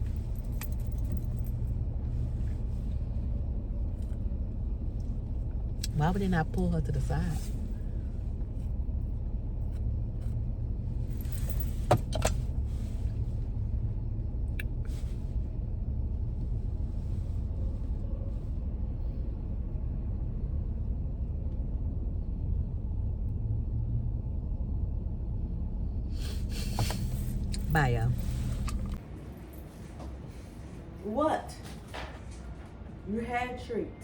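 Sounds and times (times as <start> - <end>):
car cabin rumble: 0.0 - 19.0, 26.1 - 29.0.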